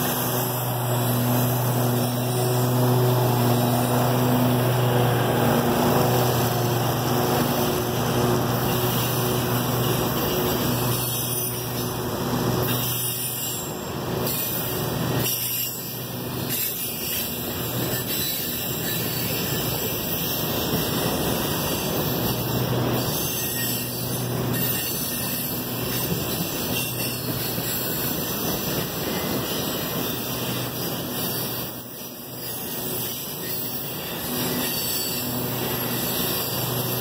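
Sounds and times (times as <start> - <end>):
train wheels on rails: 0.0 - 37.0.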